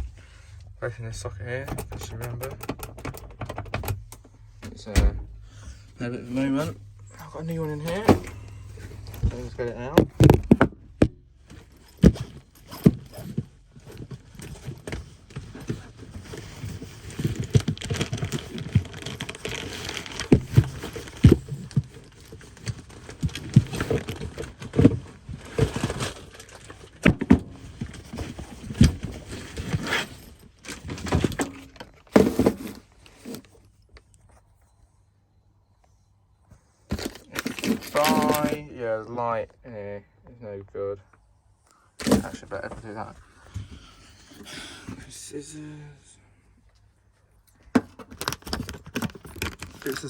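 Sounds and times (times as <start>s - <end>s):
objects knocking and rattling: 1.6s - 5.6s, 7.4s - 33.6s, 36.9s - 38.6s, 47.6s - 50.0s
rustling: 11.4s - 34.8s.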